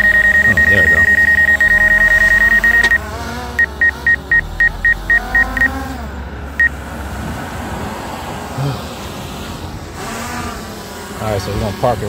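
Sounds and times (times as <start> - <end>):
high electronic warning beeps: 0.0 - 3.0, 3.6 - 5.8
low steady hum: 0.0 - 7.0.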